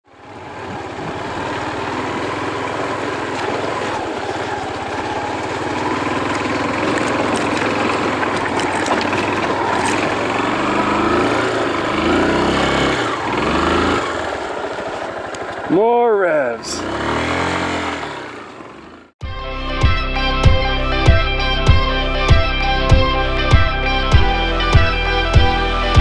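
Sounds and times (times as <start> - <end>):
motorcycle engine revving: 0.0 - 19.2.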